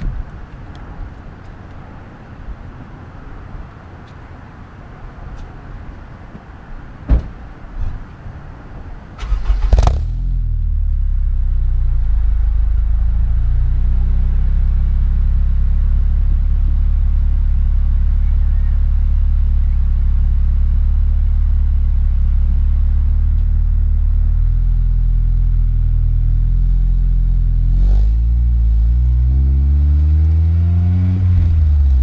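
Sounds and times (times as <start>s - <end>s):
car engine starting and idling: 9.0s - 32.0s.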